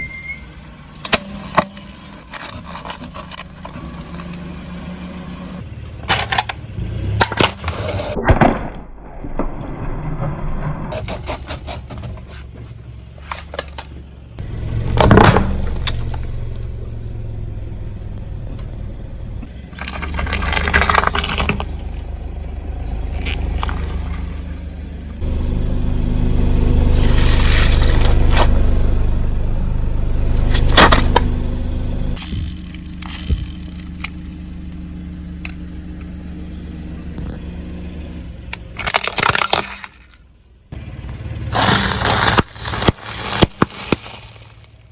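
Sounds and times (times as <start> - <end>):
car engine running: 0.6 - 8.2, 10.9 - 44.9
tyre crushing objects: 10.9 - 16.3, 19.8 - 21.9, 30.2 - 32.2, 41.6 - 44.9.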